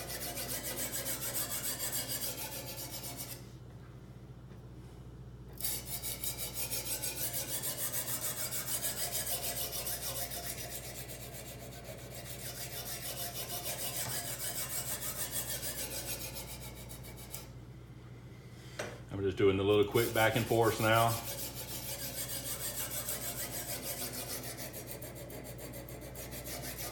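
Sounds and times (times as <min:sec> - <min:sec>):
sharpening stone scraping knife edge: 0:00.0 - 0:03.4, 0:05.6 - 0:17.5, 0:21.1 - 0:26.9.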